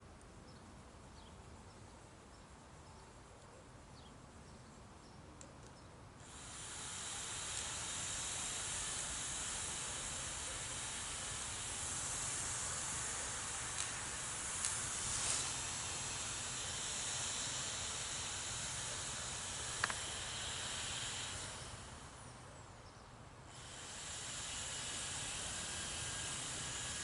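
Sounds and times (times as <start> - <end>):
steam hissing from car: 6.2 - 22.3, 23.5 - 27.0.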